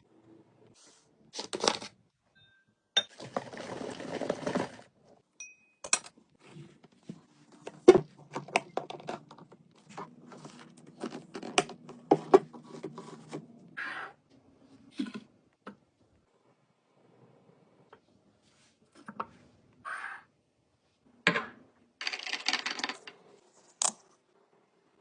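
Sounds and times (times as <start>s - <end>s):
plastic containers clicking and knocking: 7.7s - 9.6s.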